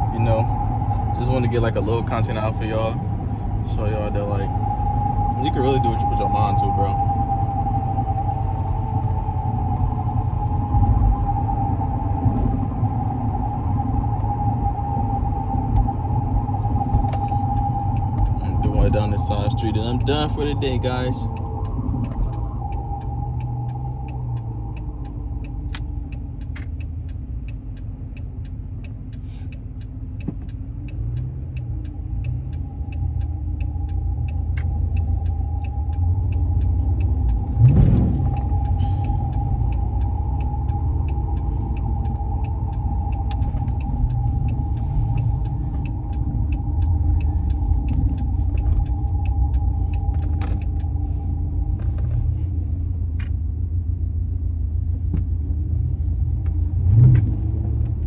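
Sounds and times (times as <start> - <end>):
car engine rumbling from inside: 0.0 - 58.0
engine revving: 13.4 - 27.1, 29.2 - 52.5, 56.4 - 58.0.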